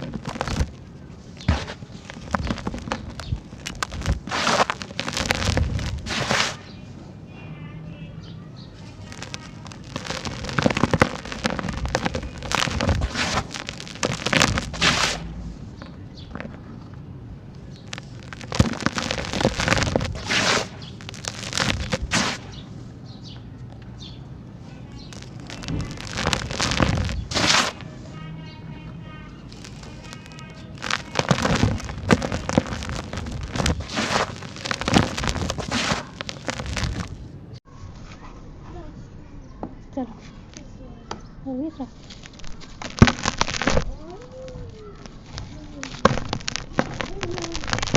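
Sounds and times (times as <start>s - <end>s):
sand-cement chunks crumbling: 0.0s - 6.7s, 8.8s - 16.9s, 17.6s - 22.7s, 24.7s - 28.0s, 29.4s - 37.2s, 42.0s - 47.9s.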